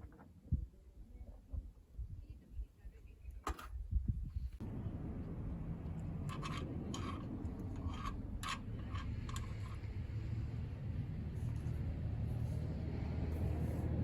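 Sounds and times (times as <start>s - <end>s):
steady low rumble: 3.9s - 14.0s.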